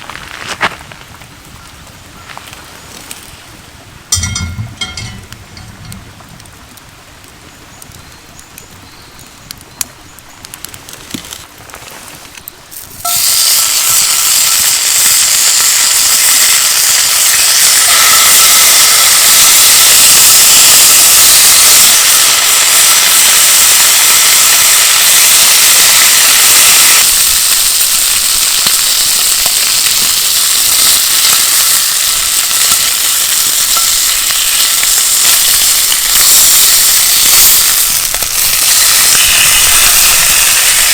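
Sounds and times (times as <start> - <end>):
fire crackling: 0.0 - 40.9
food sizzling in a pan: 4.1 - 6.3, 12.8 - 40.9.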